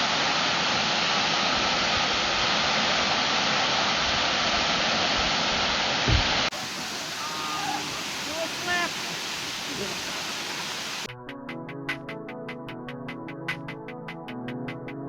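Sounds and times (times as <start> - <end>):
waterfall rushing: 0.0 - 11.1
low thump: 6.1 - 6.4.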